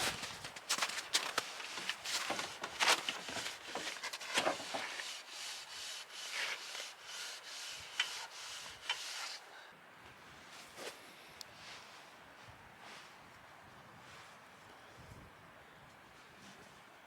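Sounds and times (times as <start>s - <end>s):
rubbing or scraping strokes: 1.2s - 9.4s.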